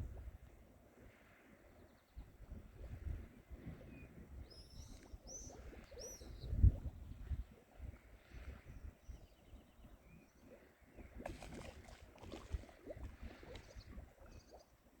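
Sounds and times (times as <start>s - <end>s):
faint bird chirps: 3.8s - 7.6s, 8.4s - 12.6s, 13.2s - 14.9s.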